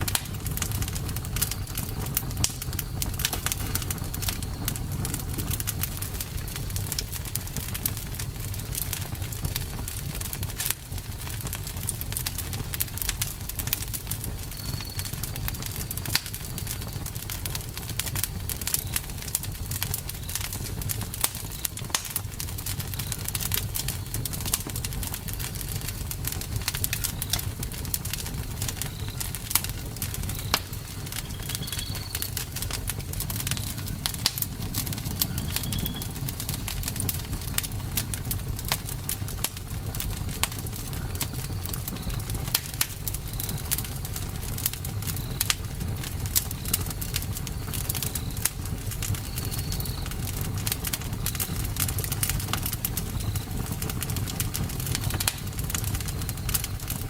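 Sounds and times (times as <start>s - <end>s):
fire low rumble: 0.0s - 57.0s
wood fire crackling and popping: 0.0s - 57.0s
faint high chirps: 14.5s - 15.4s, 28.6s - 37.5s, 49.2s - 50.1s.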